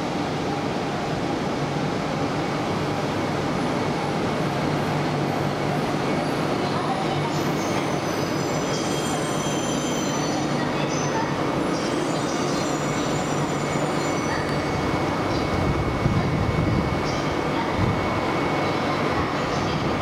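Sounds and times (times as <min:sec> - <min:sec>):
train rumbling: 0:00.0 - 0:20.0
wheels and brakes squealing: 0:07.6 - 0:11.1, 0:11.7 - 0:14.4.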